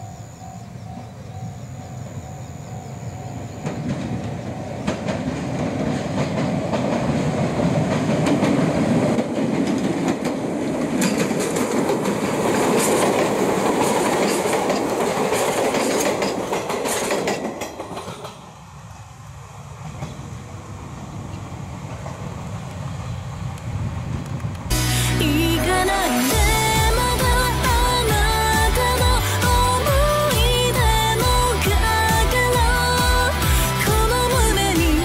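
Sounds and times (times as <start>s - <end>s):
electric train rumble: 0.0s - 35.0s
wheels clacking over rail joints: 3.3s - 18.6s.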